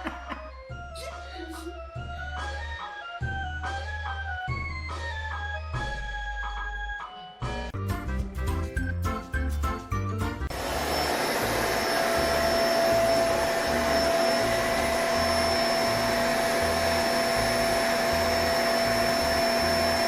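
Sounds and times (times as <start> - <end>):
appliance motor whining: 10.5 - 20.0.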